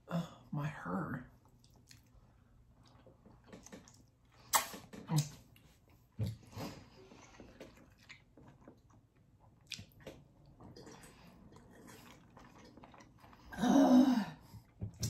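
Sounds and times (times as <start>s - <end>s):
chewing and crunching: 1.4s - 4.6s, 5.6s - 13.5s.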